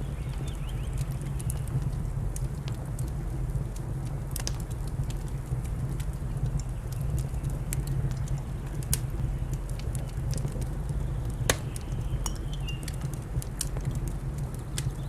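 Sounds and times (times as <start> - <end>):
wood fire crackling and popping: 11.5 - 15.0.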